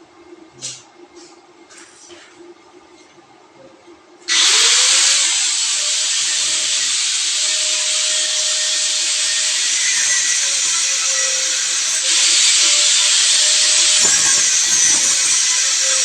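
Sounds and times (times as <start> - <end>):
loud hiss of spray: 4.3 - 16.0
power sprayer motor spinning up: 4.3 - 16.0.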